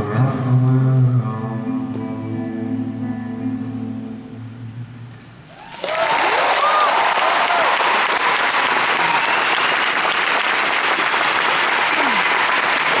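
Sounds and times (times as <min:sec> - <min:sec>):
whoops: 0:05.5 - 0:09.9, 0:11.9 - 0:13.0
audience applauding and cheering: 0:05.5 - 0:13.0.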